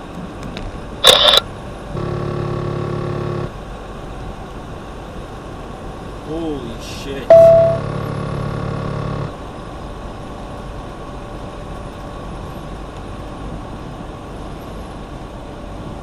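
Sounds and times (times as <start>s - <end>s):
truck engine tone with harmonics: 1.9s - 3.6s, 7.3s - 9.4s.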